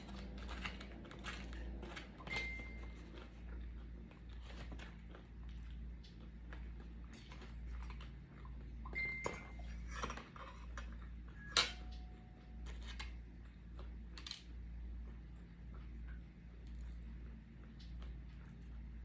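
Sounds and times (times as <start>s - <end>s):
steady low hum: 0.0s - 19.0s
tableware clicks and clinks: 8.9s - 13.0s.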